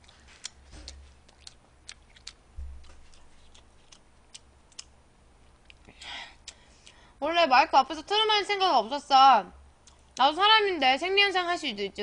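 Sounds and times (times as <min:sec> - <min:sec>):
chewing clicks: 0:00.0 - 0:07.0, 0:09.8 - 0:10.3.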